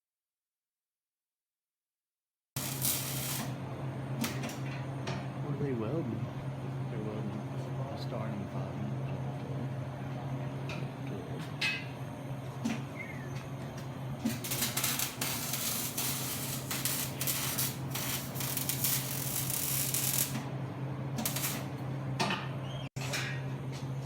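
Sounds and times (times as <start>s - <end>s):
welding arc crackling: 2.6s - 3.6s, 14.2s - 20.5s, 21.2s - 21.8s
steady low hum: 2.6s - 24.0s.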